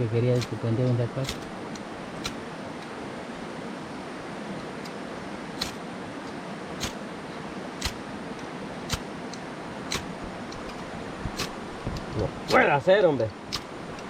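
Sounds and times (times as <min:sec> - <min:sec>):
steady background hiss: 0:00.0 - 0:14.0
fire-starter striking clicks: 0:00.3 - 0:03.0, 0:04.7 - 0:07.1, 0:07.7 - 0:14.0.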